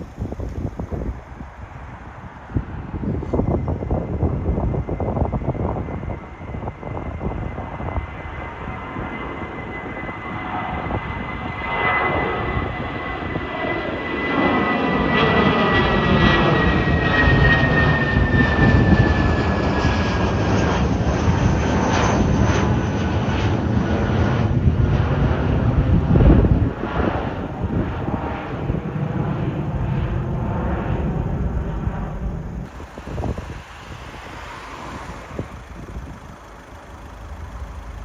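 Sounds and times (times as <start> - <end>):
high jet engine whine: 0.0 - 38.0
jet engines passing: 0.0 - 38.0.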